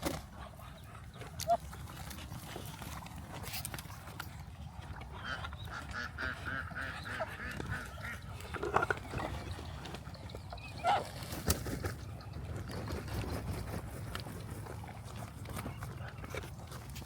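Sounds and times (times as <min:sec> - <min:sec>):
ducks calling: 0:05.1 - 0:11.4.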